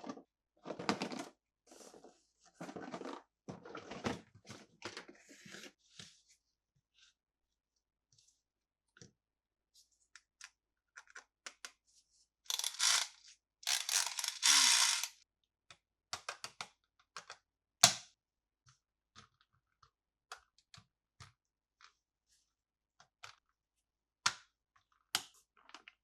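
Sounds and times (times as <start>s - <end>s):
plastic scraping and rustling: 0.7s - 5.8s
plastic toy parts clicking: 12.5s - 15.1s.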